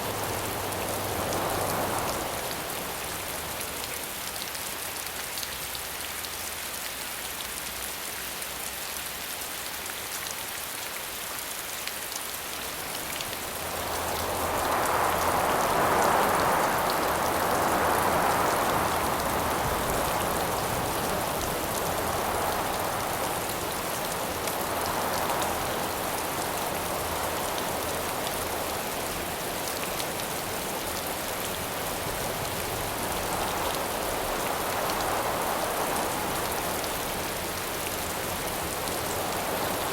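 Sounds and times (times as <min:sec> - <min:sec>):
gusts of wind: 0:00.0 - 0:03.8, 0:12.7 - 0:39.9
rain falling: 0:00.0 - 0:39.9.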